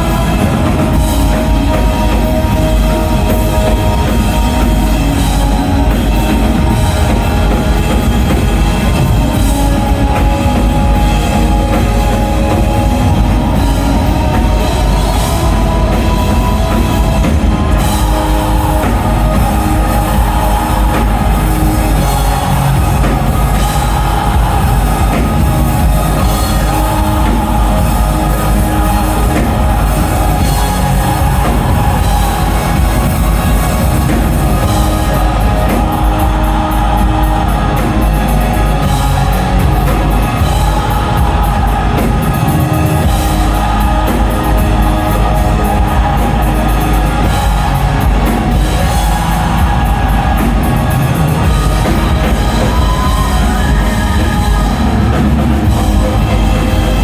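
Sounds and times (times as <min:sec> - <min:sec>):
fast rhythmic hits: 0:00.0 - 0:57.0
metal band playing live: 0:00.0 - 0:57.0.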